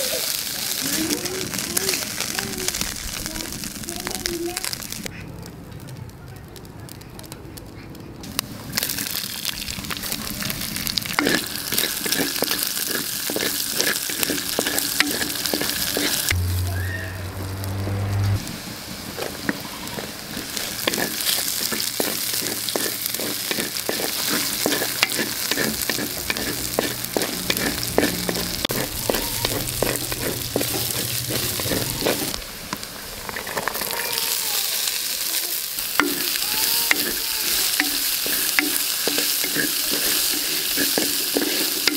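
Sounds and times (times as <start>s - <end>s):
vegetables sizzling in oil: 0.0s - 5.1s, 8.3s - 41.9s
wooden spatula scraping a pot: 11.0s - 16.4s, 19.2s - 32.4s, 35.8s - 41.9s
low hum: 16.3s - 19.6s.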